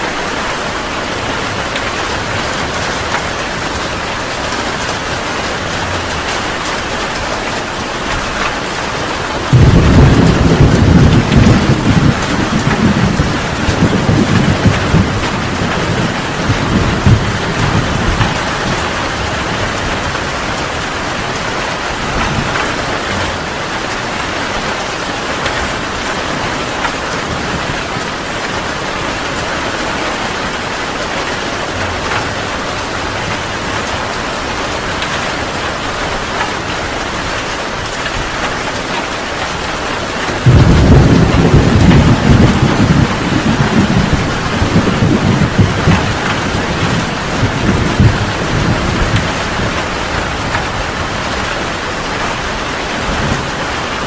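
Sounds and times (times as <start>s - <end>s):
heavy rain pouring: 0.0s - 54.0s
thunder rumbling: 0.1s - 54.0s
loud thunder clap: 9.4s - 20.9s, 40.3s - 51.5s.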